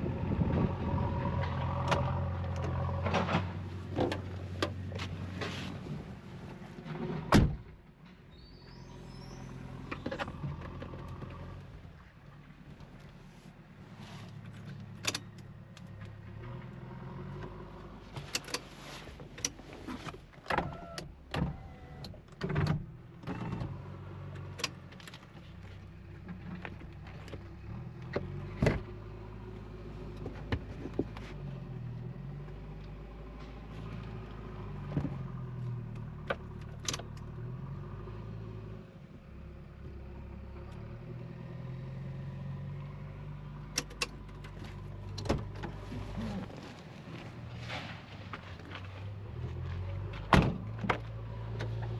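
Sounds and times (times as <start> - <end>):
diesel engine running: 0.0 - 6.8.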